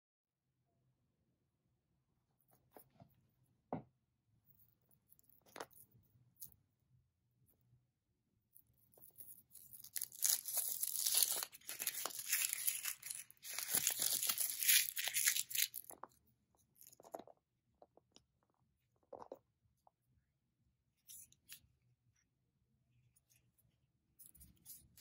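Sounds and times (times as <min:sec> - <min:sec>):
wrapper tearing and crinkling: 0:09.6 - 0:16.0.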